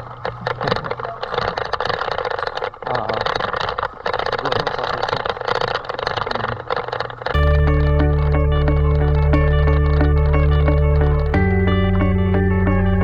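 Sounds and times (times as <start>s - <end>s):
acoustic guitar music: 7.4s - 13.0s.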